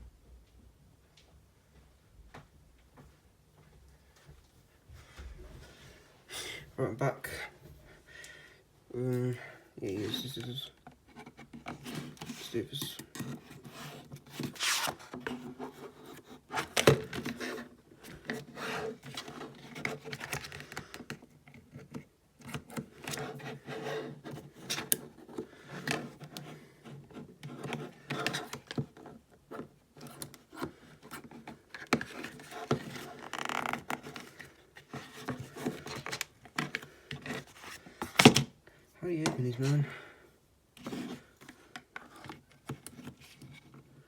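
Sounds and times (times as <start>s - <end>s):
package scraping and rubbing: 11.1s - 21.0s, 22.6s - 38.2s.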